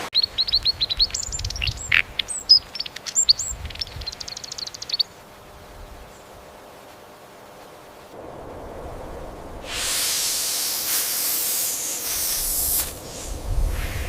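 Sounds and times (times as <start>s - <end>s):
songbird singing: 0.0s - 10.4s.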